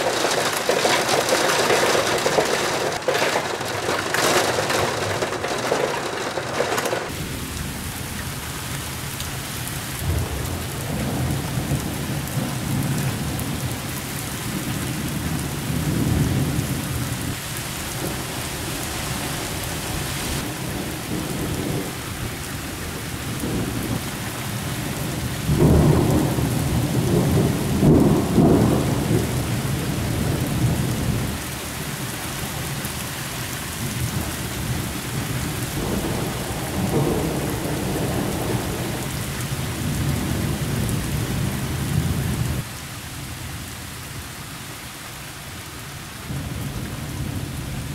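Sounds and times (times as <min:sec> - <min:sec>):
rolling thunder: 0:00.0 - 0:07.5, 0:23.2 - 0:31.4, 0:33.9 - 0:42.6
heavy rain: 0:00.0 - 0:47.9.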